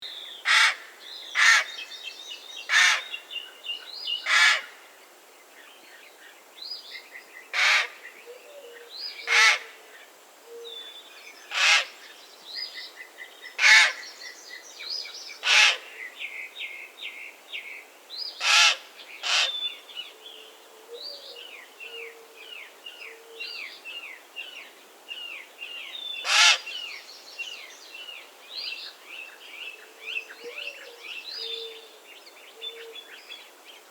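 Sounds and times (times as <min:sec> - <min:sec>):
songbirds chirping: 0:00.0 - 0:33.9
raven calling: 0:00.5 - 0:01.7, 0:04.3 - 0:04.8, 0:07.6 - 0:08.0, 0:09.3 - 0:09.8, 0:11.5 - 0:12.0, 0:13.6 - 0:14.0, 0:15.4 - 0:15.9, 0:18.4 - 0:19.6, 0:26.2 - 0:26.7.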